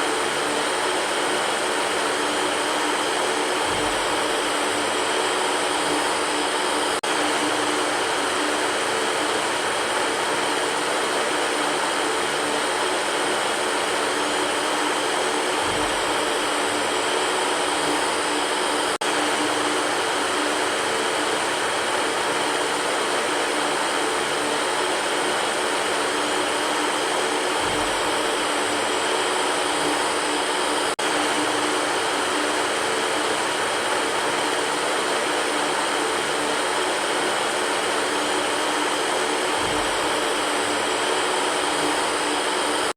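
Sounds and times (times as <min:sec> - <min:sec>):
electric fan running: 0:00.0 - 0:42.9.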